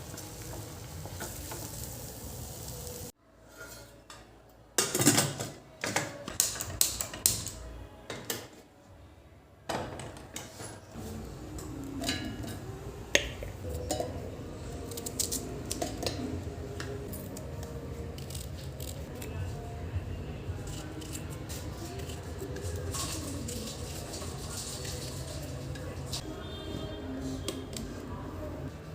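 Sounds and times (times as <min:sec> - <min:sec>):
utensils and dishes clinking: 0:03.4 - 0:08.4, 0:09.7 - 0:19.1, 0:20.7 - 0:26.2.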